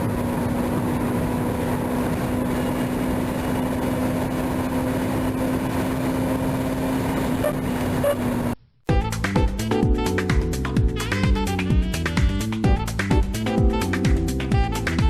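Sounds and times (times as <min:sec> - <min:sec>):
car engine running at steady revs: 0:00.0 - 0:08.6.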